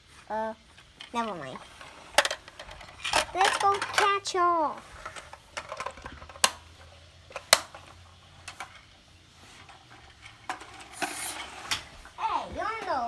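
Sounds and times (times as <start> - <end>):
plastic toy pieces clicking: 1.0 - 4.4, 5.0 - 8.9.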